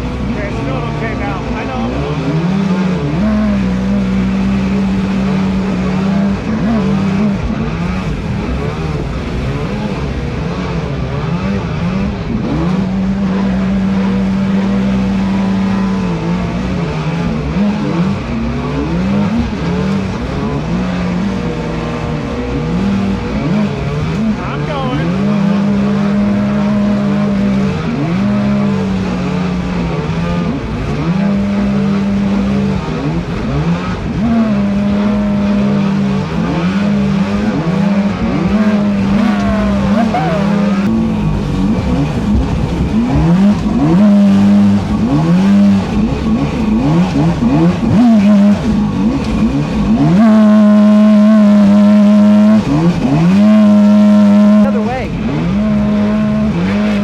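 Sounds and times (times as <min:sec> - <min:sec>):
electric boat motor whining: 0:34.8 - 0:51.0
churning water: 0:37.5 - 0:50.1.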